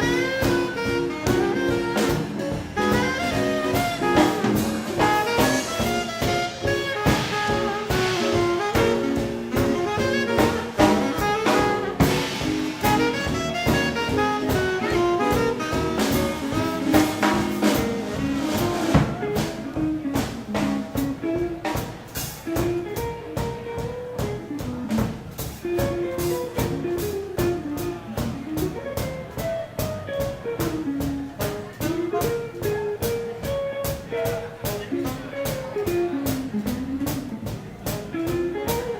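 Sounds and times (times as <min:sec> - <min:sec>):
swing band playing: 0:00.0 - 0:38.9.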